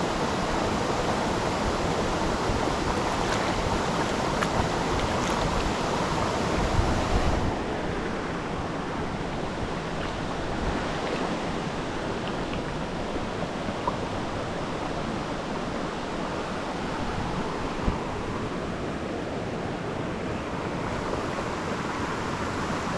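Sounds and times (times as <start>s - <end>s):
river water rushing: 0.0s - 22.9s.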